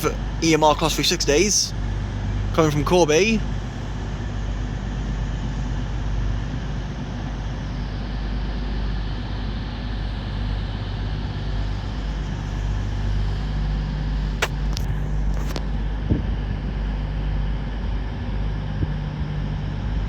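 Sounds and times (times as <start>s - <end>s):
electric train humming: 0.0s - 15.8s.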